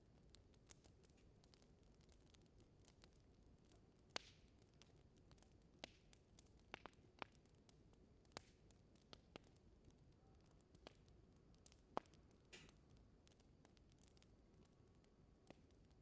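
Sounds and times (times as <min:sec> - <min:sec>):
wood fire crackling: 0:00.0 - 0:16.0
faint steady hiss: 0:07.8 - 0:16.0.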